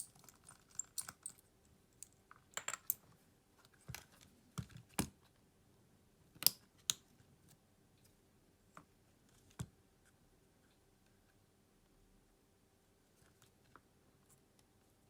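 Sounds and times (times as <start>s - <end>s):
small tools clicking and tapping: 0.0s - 1.4s, 2.0s - 3.0s.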